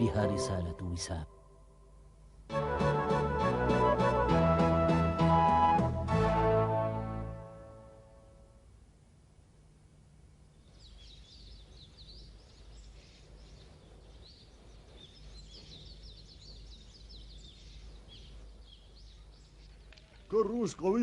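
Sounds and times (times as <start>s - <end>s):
low steady hum: 0.0s - 2.8s, 5.4s - 21.0s
small birds chirping: 10.4s - 21.0s.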